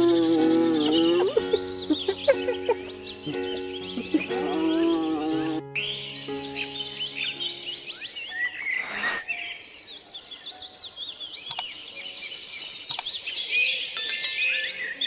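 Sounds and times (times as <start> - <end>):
small birds chirping: 0.0 - 15.0
faint clicks: 11.5 - 11.7, 12.9 - 13.1.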